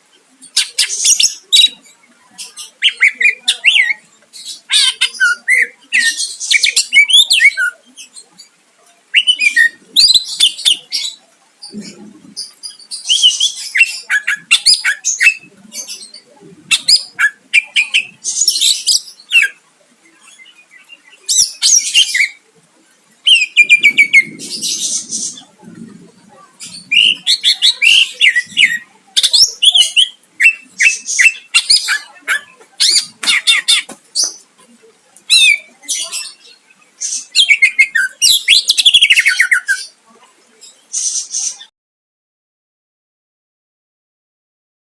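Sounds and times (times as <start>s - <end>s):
bird singing chattering whistles: 26.6s - 32.1s.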